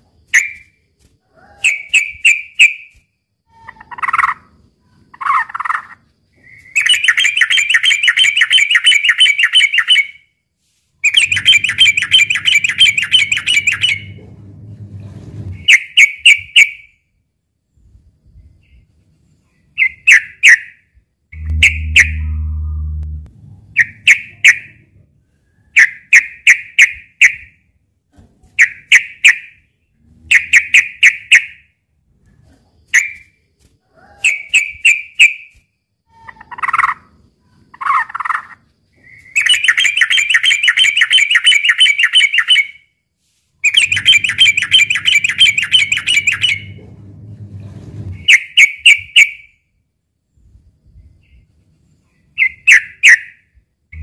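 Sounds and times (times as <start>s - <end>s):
bird singing rapid phrases: 5.2s - 10.2s, 11.0s - 14.2s, 21.4s - 23.0s, 37.8s - 42.8s, 43.6s - 46.8s
bird fast chattering: 11.0s - 14.2s, 43.6s - 46.8s
bird lower calls: 11.0s - 14.2s, 21.4s - 24.8s, 43.6s - 46.8s.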